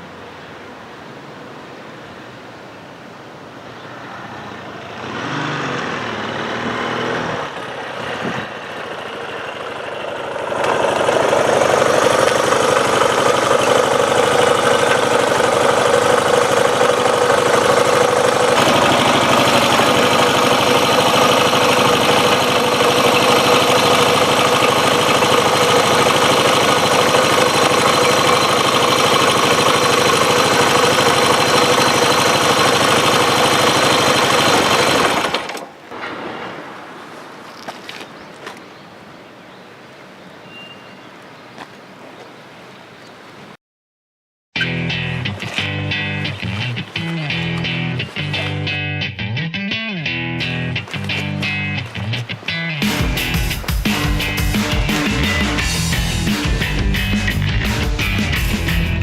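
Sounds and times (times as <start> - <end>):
engine-like mechanical running: 5.0 - 35.7, 52.8 - 59.0.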